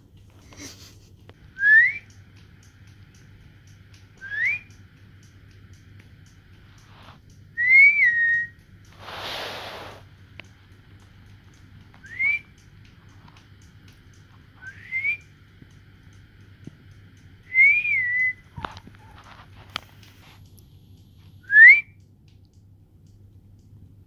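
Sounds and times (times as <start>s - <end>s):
person whistling short notes: 1.6s - 2.0s, 4.2s - 4.7s, 7.6s - 8.6s, 17.5s - 18.4s, 21.4s - 22.0s.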